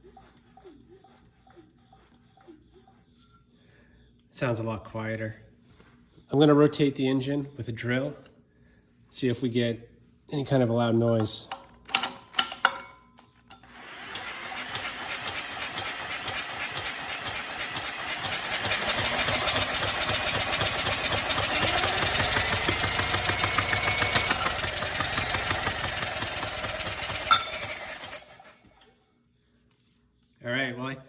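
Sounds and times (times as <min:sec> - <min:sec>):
drill turning an engine over: 0:13.5 - 0:28.8
drill click: 0:13.5 - 0:28.9.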